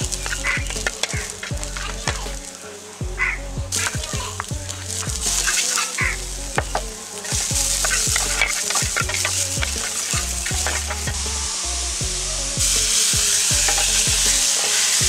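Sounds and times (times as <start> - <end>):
food sizzling in hot oil: 3.8 - 6.2, 7.1 - 12.0, 12.6 - 15.0.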